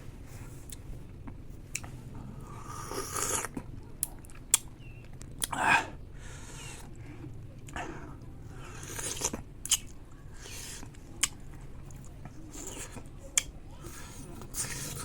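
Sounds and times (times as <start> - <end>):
person chewing and biting: 2.6 - 5.6, 8.6 - 13.5.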